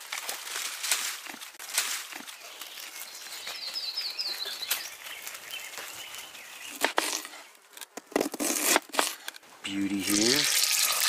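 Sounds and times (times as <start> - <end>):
handling knocks and rustles: 0.0 - 3.8
outdoor background noise: 0.0 - 11.0
bird chirping: 2.1 - 7.6.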